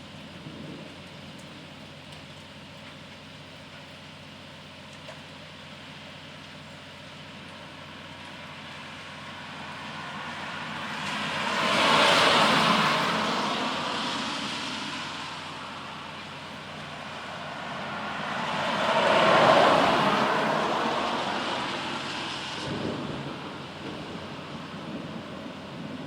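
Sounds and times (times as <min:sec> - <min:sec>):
road vehicles passing: 0:07.9 - 0:26.0.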